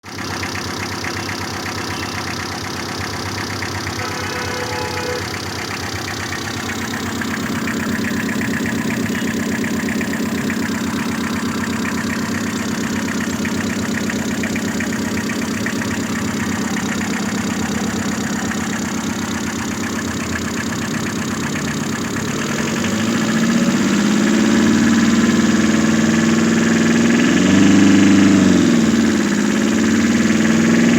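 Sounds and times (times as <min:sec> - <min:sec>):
vehicle engine idling: 0:00.0 - 0:30.9.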